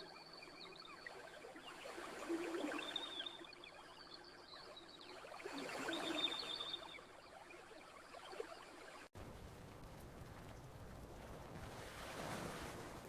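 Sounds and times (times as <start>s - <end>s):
campfire crackling and popping: 9.2s - 11.9s.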